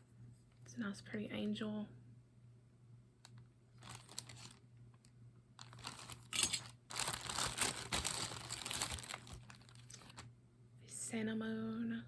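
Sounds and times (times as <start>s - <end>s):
plastic bags crinkling: 3.8s - 10.3s.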